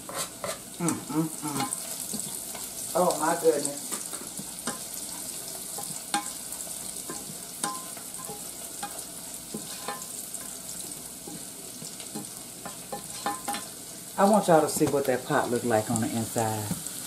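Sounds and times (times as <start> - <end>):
spoon scraping and knocking pan: 0.0 - 0.6, 1.6 - 2.8, 3.8 - 13.8, 14.5 - 15.4
food sizzling in a saucepan: 0.0 - 17.0.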